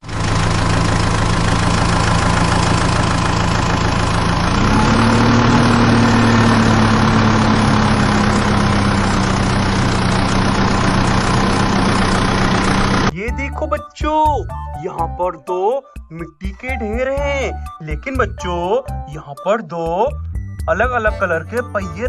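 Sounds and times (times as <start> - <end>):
tractor engine revving: 0.0 - 13.2.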